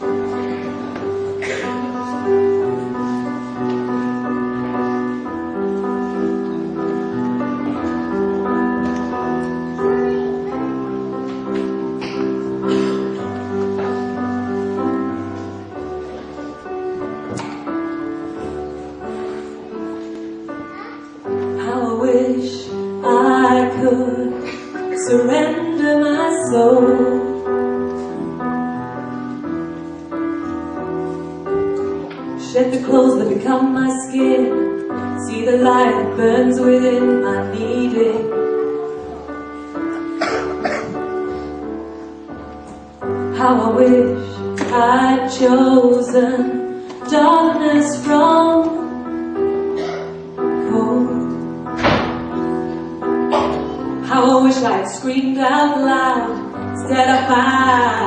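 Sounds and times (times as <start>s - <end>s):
piano playing slow chords: 0.0s - 58.0s
woman singing: 21.6s - 27.4s, 32.4s - 38.4s, 43.3s - 48.9s, 50.6s - 51.3s, 54.0s - 58.0s.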